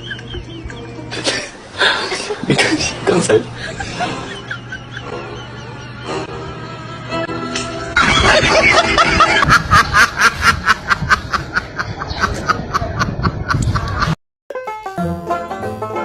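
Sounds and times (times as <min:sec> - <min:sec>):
person snickering and laughing: 0:03.6 - 0:05.8, 0:08.0 - 0:14.2.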